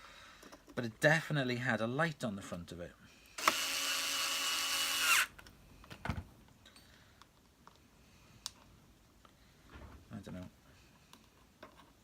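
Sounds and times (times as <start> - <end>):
power drill running: 3.4 - 5.3.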